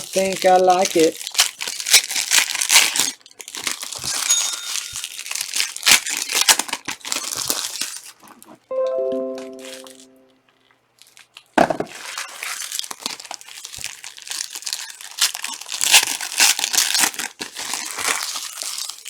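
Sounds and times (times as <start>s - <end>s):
foil wrappers tearing and crinkling: 0.0s - 4.3s, 12.8s - 19.0s.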